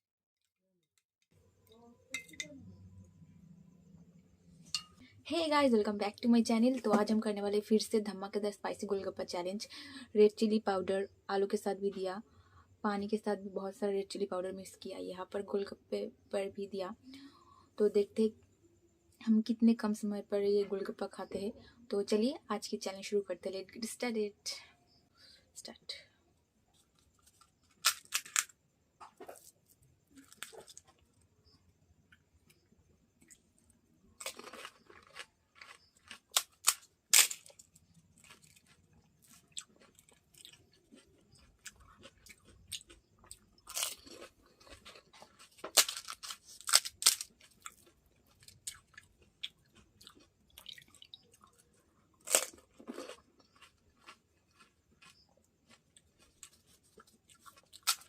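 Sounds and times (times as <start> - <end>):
quiet chewing: 26.6 - 27.8, 29.0 - 36.7, 37.5 - 45.8, 47.2 - 58.0
crunching crisp shells: 26.7 - 58.0.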